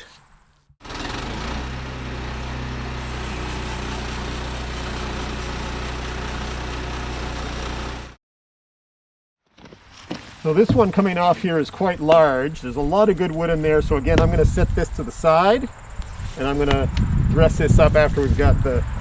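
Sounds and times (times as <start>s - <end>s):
sawmill gas engine running: 0.8s - 8.2s.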